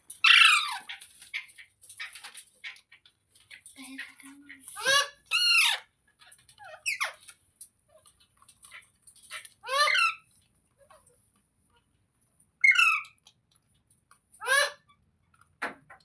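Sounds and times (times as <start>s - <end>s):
parrot squawking: 0.2s - 1.4s, 4.1s - 5.9s, 9.6s - 10.3s, 12.6s - 13.2s, 14.4s - 14.8s
parrot soft chirps and clicks: 12.6s - 16.0s.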